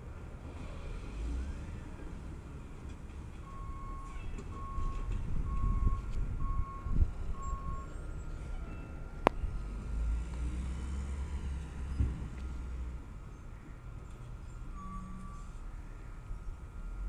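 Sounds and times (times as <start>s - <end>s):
reversing alarm beeping: 3.4s - 10.1s, 14.2s - 17.0s.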